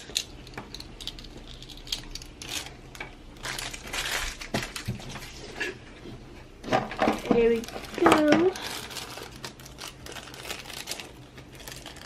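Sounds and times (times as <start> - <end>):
small plastic pieces clicking: 0.0 - 2.8
plastic packaging crinkling: 0.0 - 5.6, 6.9 - 12.0.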